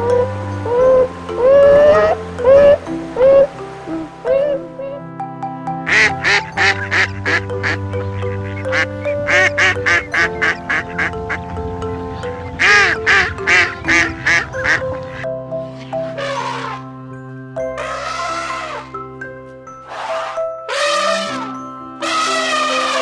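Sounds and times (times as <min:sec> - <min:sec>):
ducks quacking: 0:00.0 - 0:05.0, 0:05.9 - 0:15.2
background music: 0:00.0 - 0:23.0.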